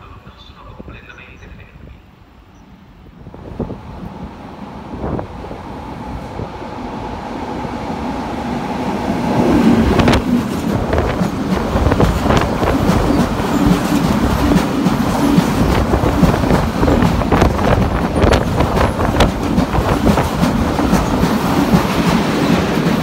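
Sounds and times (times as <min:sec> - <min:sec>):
freight train rumble: 0:00.0 - 0:23.0
wheels clacking over rail joints: 0:10.0 - 0:23.0.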